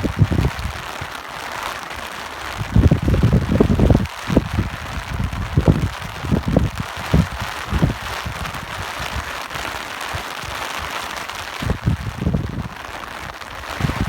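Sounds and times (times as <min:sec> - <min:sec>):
wind buffeting microphone: 0:00.0 - 0:01.2, 0:02.5 - 0:10.6, 0:11.3 - 0:14.0
steady rain falling: 0:00.0 - 0:14.0.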